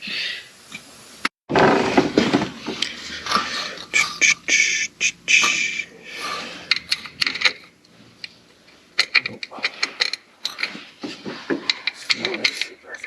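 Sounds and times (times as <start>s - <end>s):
tools and bolts clicking: 6.7s - 8.4s, 9.0s - 10.8s.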